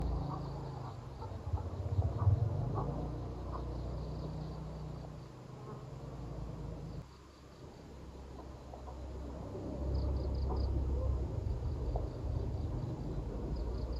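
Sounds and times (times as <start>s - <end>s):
insect buzzing: 3.0s - 7.9s.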